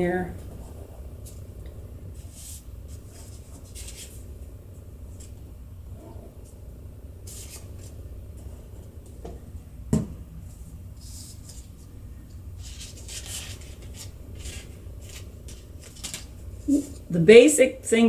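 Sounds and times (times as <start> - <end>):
low steady hum: 0.0 - 18.0
paper rustling: 2.2 - 4.3, 7.2 - 8.0, 10.6 - 11.9, 12.6 - 17.1.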